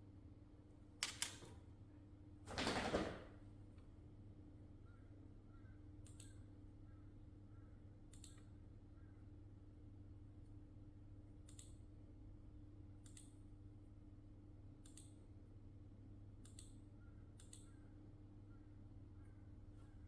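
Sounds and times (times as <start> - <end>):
faint sharp clicks: 6.0 - 6.4, 8.1 - 8.5, 11.5 - 11.8, 13.0 - 13.4, 14.8 - 15.2, 17.4 - 17.7.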